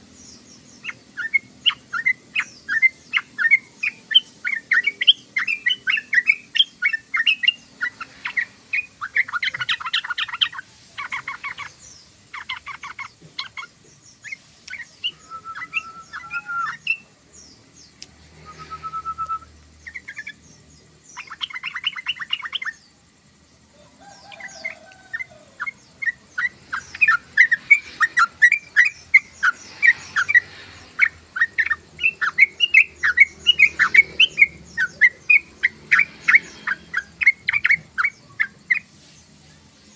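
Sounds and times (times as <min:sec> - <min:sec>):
bird chattering chirps: 0:00.1 - 0:22.9, 0:24.0 - 0:39.0
bird whistled notes: 0:14.7 - 0:17.0, 0:18.4 - 0:20.3.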